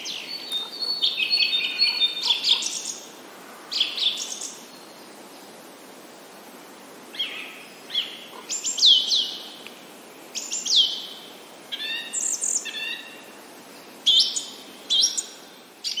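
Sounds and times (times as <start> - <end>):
birds chirping: 0.0 - 5.7
steady background hiss: 0.0 - 16.0.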